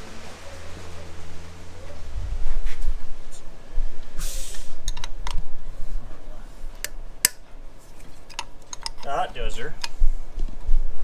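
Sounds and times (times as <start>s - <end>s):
brief hiss: 4.2s - 4.9s
tools and metal parts clinking: 8.0s - 9.2s.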